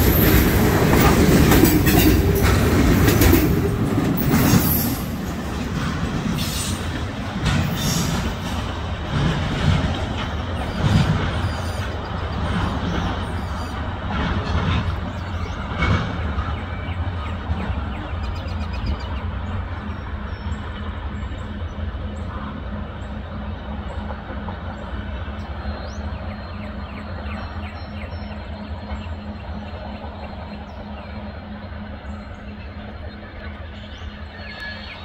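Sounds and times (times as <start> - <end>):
freight train rumble: 0.0 - 35.0.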